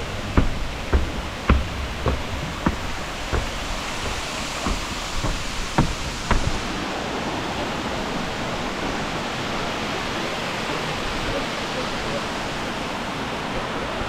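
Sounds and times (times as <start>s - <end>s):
short knocks: 0.0s - 6.8s
waterfall rushing: 0.0s - 14.0s.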